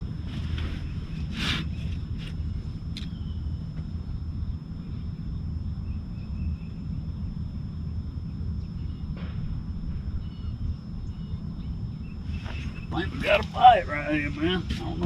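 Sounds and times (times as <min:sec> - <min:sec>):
low boat rumble: 0:00.0 - 0:15.0
faint bird chirps: 0:00.6 - 0:03.7, 0:04.8 - 0:07.6, 0:08.2 - 0:13.4.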